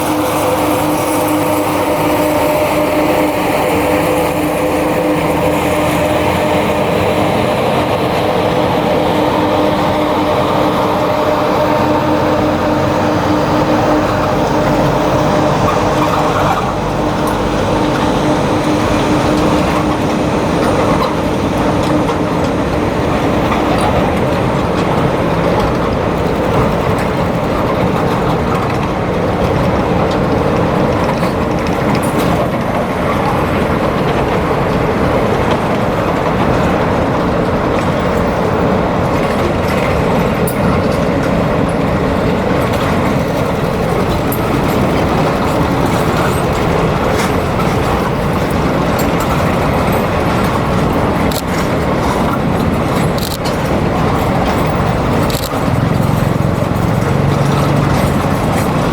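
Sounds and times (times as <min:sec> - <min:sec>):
train wheels rattling on rails: 0:00.0 - 0:58.9.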